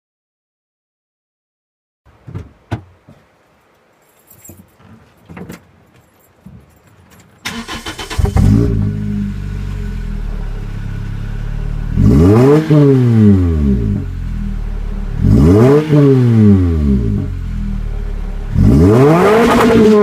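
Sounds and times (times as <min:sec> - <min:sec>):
car engine starting and idling: 0:07.4 - 0:20.0
engine revving: 0:07.5 - 0:20.0.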